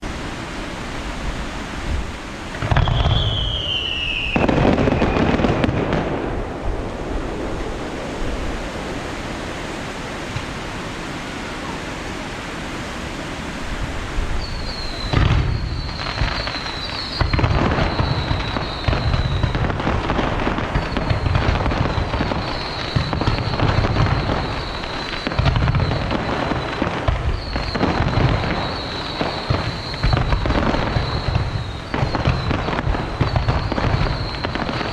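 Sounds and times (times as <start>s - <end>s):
fireworks booming: 1.5s - 11.0s, 14.4s - 34.9s
short falling whistle: 2.8s - 5.3s, 14.4s - 19.5s, 20.8s - 34.9s
high wavering whistle: 2.8s - 5.4s, 14.4s - 19.6s, 20.8s - 34.9s.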